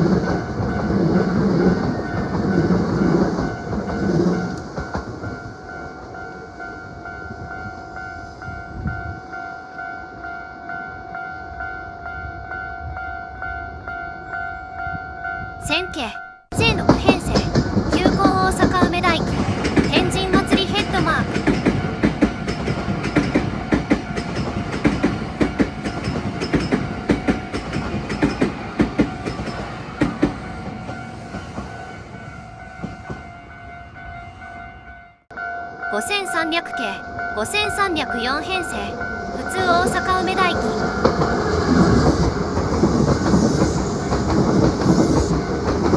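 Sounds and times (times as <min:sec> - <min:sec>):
train rumbling: 0:00.0 - 0:09.8, 0:16.5 - 0:45.9
level crossing bell ringing: 0:33.9 - 0:41.0.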